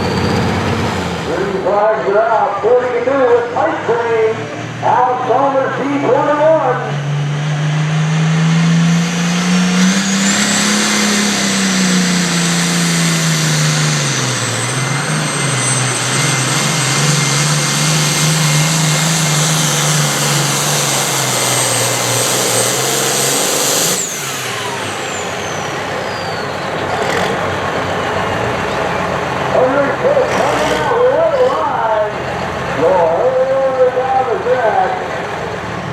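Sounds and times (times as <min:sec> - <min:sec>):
pulling vehicle engine at full power: 0:00.0 - 0:35.9.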